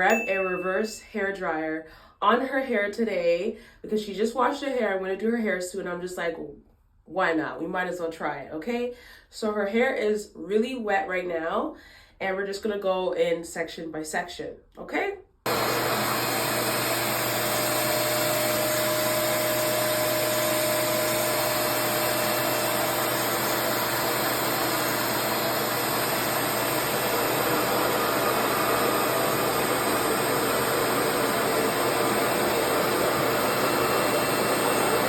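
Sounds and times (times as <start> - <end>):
hair dryer rushing air: 15.5 - 35.0.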